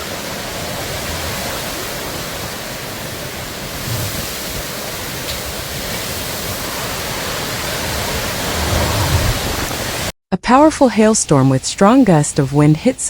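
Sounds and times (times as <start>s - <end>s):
low rumble: 7.8s - 10.1s.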